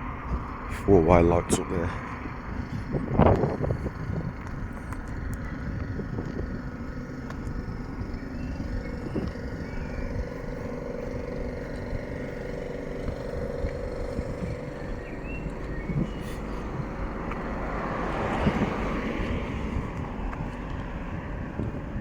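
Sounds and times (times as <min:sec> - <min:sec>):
road traffic: 0:00.0 - 0:22.0
steady engine-like hum: 0:00.0 - 0:22.0
wind rumbling on microphone: 0:00.0 - 0:22.0.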